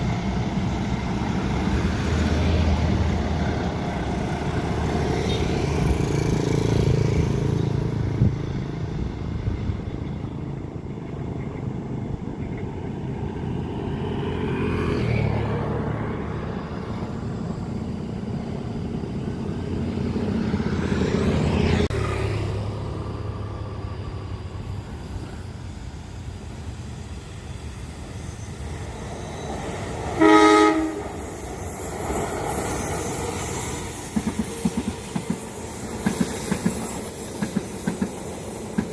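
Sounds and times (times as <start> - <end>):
train horn: 30.1 - 31.2.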